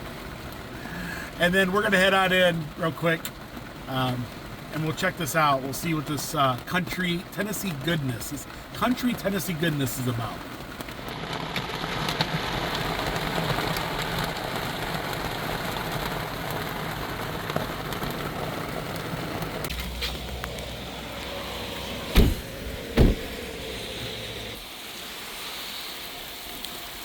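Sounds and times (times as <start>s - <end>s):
heavy rain on a car: 0.0s - 27.0s
car engine idling: 18.3s - 24.6s
car doors shutting: 19.7s - 24.5s.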